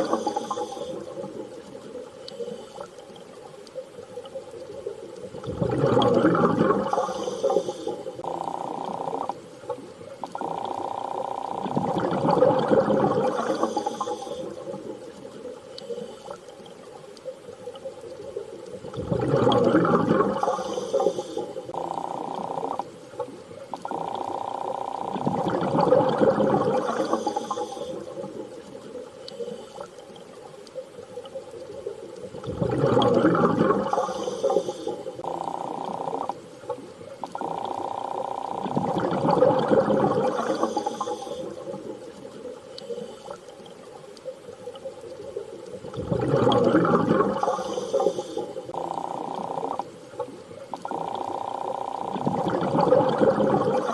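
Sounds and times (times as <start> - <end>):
underwater water surging: 0.0 - 53.9
whale-like tones: 45.8 - 53.9.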